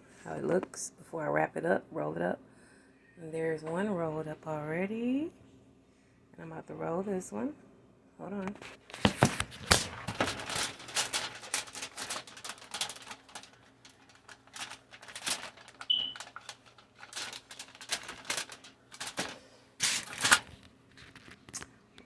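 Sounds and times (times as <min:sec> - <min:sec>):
wrap crinkling and rustling: 0:08.7 - 0:21.6.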